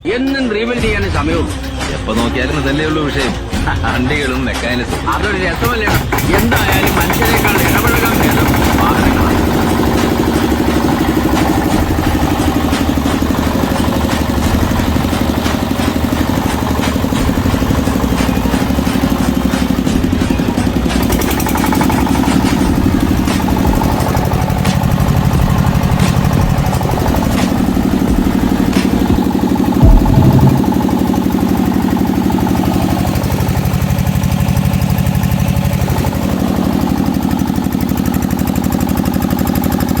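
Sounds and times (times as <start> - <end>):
diesel generator running: 0.8 - 40.0
loud knock: 29.8 - 31.0.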